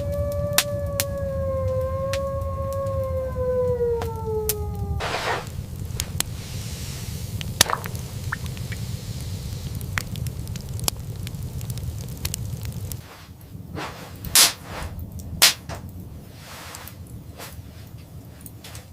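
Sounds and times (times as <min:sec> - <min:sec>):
wolf howling: 0:00.0 - 0:05.6
blizzard wind rushing: 0:00.0 - 0:18.9
burst of noise: 0:05.0 - 0:13.0.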